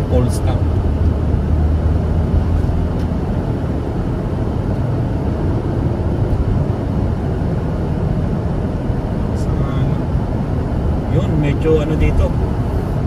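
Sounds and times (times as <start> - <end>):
car engine rumble from inside cabin: 0.0 - 13.0.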